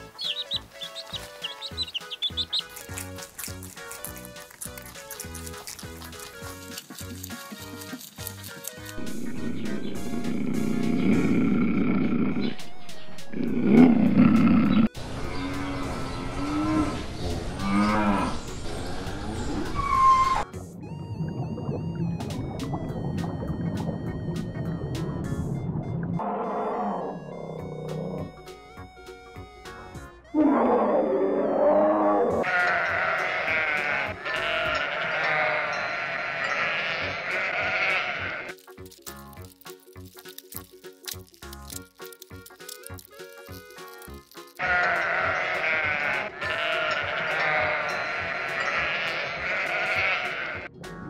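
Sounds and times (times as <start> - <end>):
light music with short notes: 0.0 - 11.6, 32.5 - 51.0
lion growling: 9.0 - 12.6, 13.3 - 15.0
cow mooing: 30.4 - 38.5, 44.6 - 50.7
sheep bleating: 32.4 - 38.5, 44.6 - 50.7.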